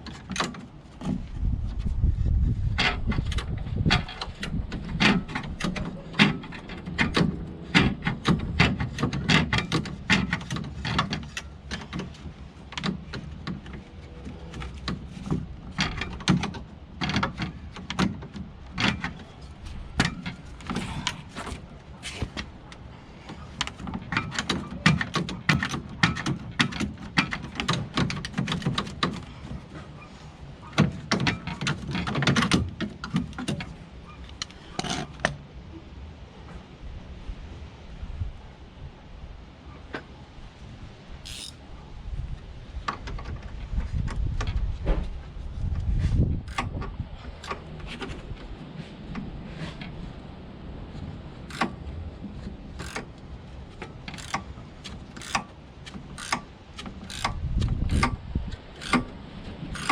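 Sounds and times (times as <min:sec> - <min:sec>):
clanks of hand work on metal: 0:02.8 - 0:19.4, 0:20.0 - 0:22.4, 0:23.3 - 0:29.8, 0:30.6 - 0:35.4, 0:46.5 - 0:48.1, 0:51.5 - 0:51.8, 0:52.8 - 0:53.2, 0:53.8 - 0:59.2.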